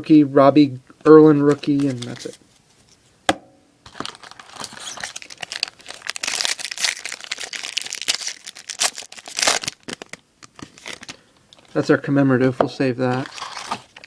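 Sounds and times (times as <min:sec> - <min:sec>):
foil wrapper tearing and crinkling: 0:03.9 - 0:11.2, 0:13.1 - 0:14.0.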